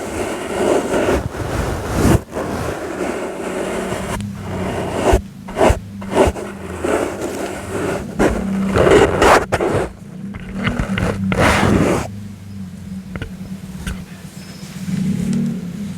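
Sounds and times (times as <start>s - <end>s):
soft brush strokes: 0.0s - 12.1s.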